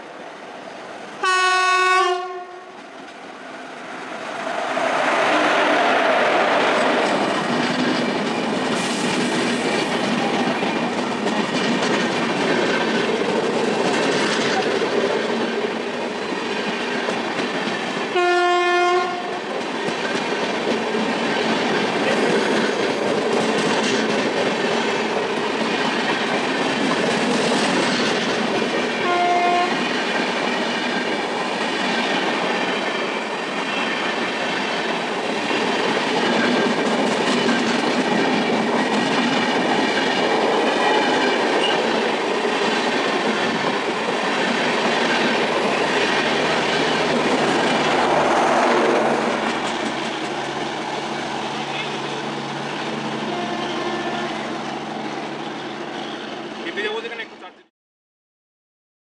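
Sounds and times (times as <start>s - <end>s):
locomotive horn: 1.2s - 2.7s, 18.2s - 19.3s, 29.0s - 29.8s, 53.2s - 54.6s
train clattering on rails: 2.0s - 3.4s, 4.3s - 57.3s.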